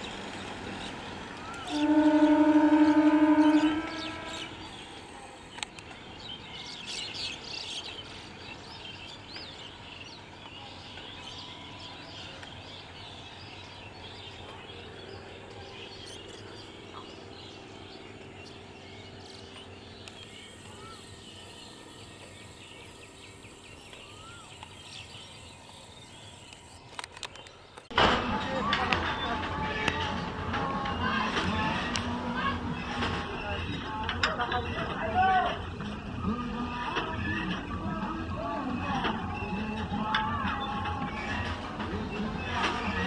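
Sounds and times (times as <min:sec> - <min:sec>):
birds chirping: 0:00.0 - 0:27.9.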